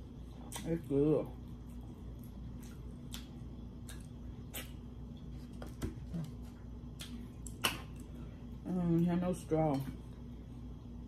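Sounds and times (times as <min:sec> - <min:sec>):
chewing food close-up: 0:00.0 - 0:08.2
faint steady hum: 0:00.0 - 0:11.0.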